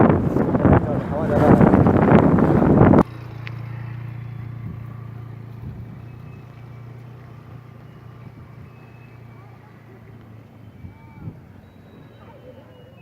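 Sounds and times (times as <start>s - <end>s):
wind on microphone: 0.0s - 3.1s, 5.6s - 6.1s
engine idling hum: 0.0s - 13.0s.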